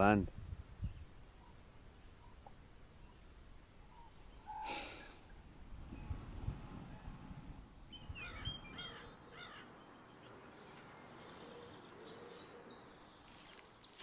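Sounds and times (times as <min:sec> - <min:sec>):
low outdoor hiss: 0:00.0 - 0:14.0
songbirds chirping: 0:00.0 - 0:14.0
rustle in dry leaves: 0:13.1 - 0:14.0.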